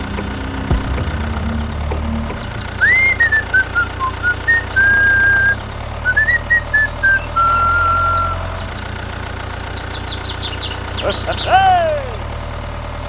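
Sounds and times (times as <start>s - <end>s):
low engine hum: 0.0s - 13.0s
person whistling a tune: 2.8s - 8.7s.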